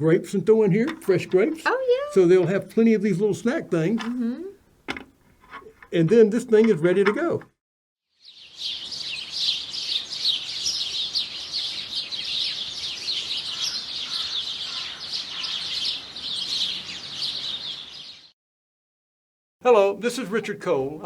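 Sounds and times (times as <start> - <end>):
many songbirds chirping: 8.2 - 18.4.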